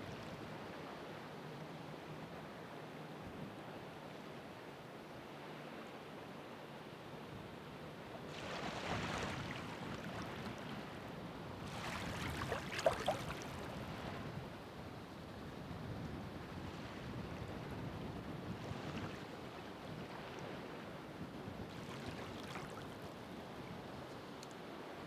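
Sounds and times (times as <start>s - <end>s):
ocean waves breaking: 8.3s - 14.2s.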